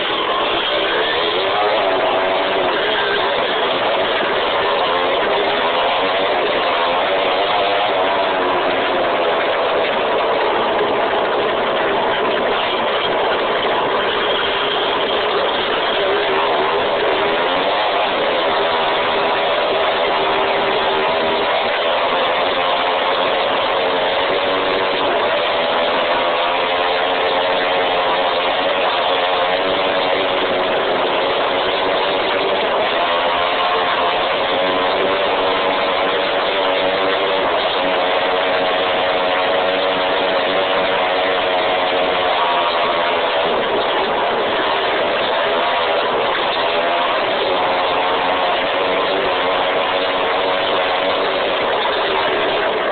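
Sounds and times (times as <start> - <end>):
dirt bike engine running: 0.0 - 52.9.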